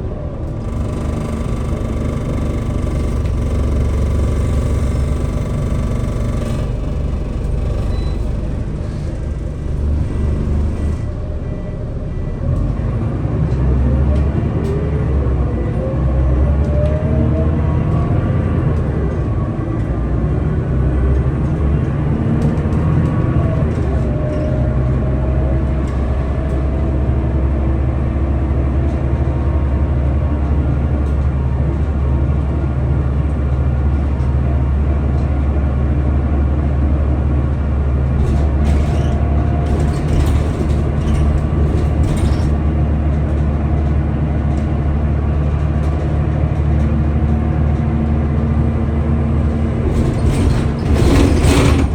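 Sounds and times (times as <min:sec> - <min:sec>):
engine whine rising in pitch: 0:00.0 - 0:20.2
bus diesel engine running: 0:00.0 - 0:51.9
sharp rattling clicks: 0:00.3 - 0:11.1.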